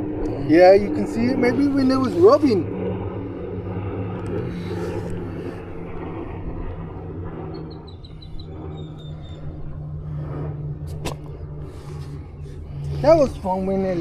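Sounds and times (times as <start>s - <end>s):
low engine hum: 0.0s - 14.0s
high chirps: 7.5s - 9.6s.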